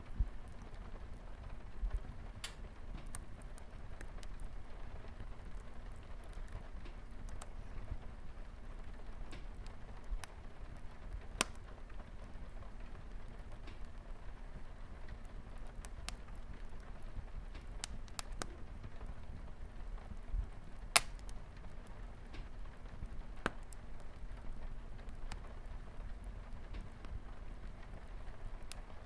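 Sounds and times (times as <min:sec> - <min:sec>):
light rain on a window: 0:00.0 - 0:29.0
wood fire crackling and popping: 0:00.0 - 0:29.0.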